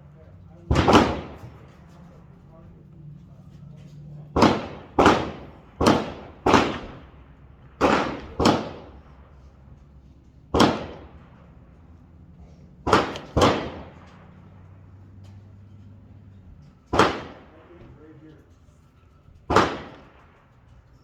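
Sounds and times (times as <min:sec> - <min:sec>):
rifle gunshots: 0:00.6 - 0:02.0, 0:04.2 - 0:09.5, 0:10.5 - 0:11.8, 0:12.8 - 0:14.8, 0:16.9 - 0:17.8, 0:19.5 - 0:20.5.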